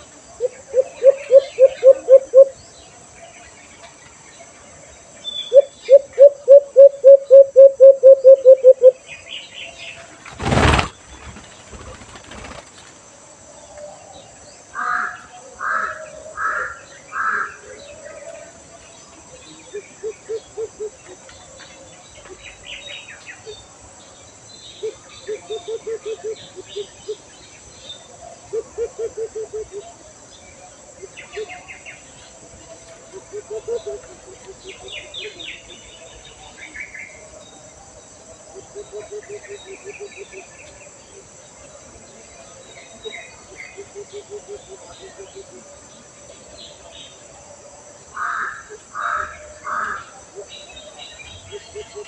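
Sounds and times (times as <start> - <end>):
bird hooting: 0.4 - 2.6, 5.5 - 9.0
higher bird call notes: 0.7 - 2.5, 5.5 - 9.0.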